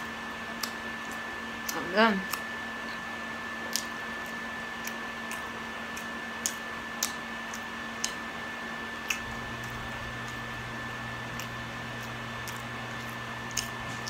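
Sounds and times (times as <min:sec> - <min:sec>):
thin steady whine: 0:00.0 - 0:14.0
mouth clicks from chewing: 0:03.7 - 0:08.2, 0:09.0 - 0:09.3, 0:13.5 - 0:14.0
low hum: 0:09.0 - 0:14.0.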